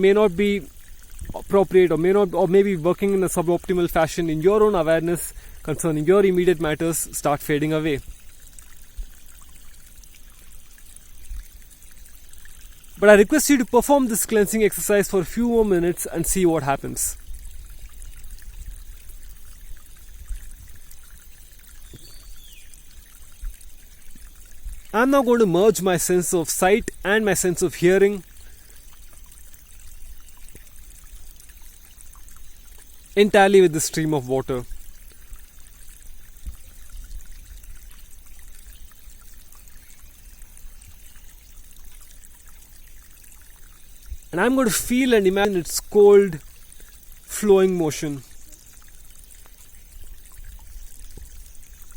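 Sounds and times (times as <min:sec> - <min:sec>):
stream flowing over rocks: 0:00.0 - 0:51.9
bird call: 0:21.9 - 0:22.7.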